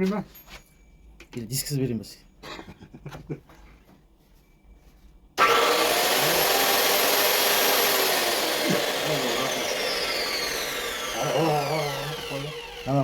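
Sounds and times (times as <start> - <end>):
angle grinder whirring: 5.4 - 13.0.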